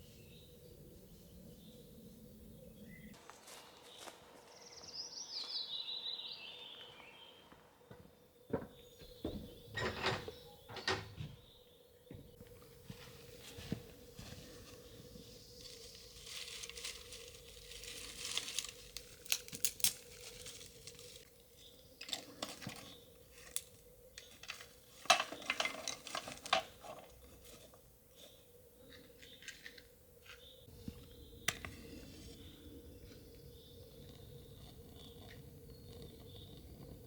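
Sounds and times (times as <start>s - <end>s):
rustling and crinkling: 12.2s - 37.0s.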